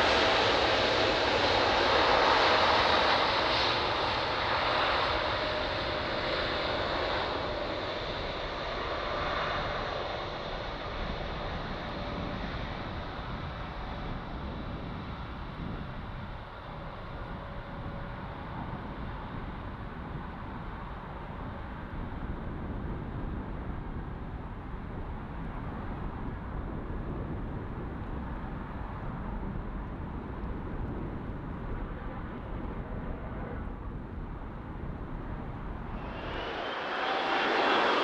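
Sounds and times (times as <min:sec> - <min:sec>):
distant jet engines rumbling: 0:34.6 - 0:38.0.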